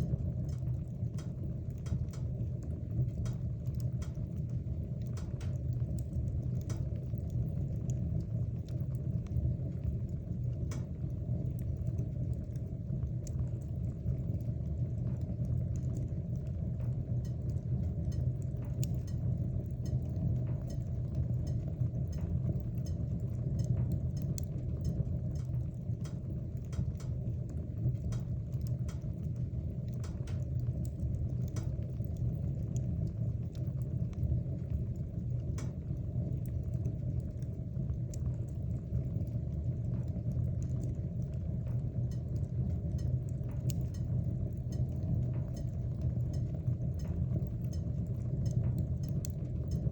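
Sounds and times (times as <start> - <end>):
burning wood crackling and popping: 0.0 - 49.9
low rumble of flame: 0.0 - 49.9.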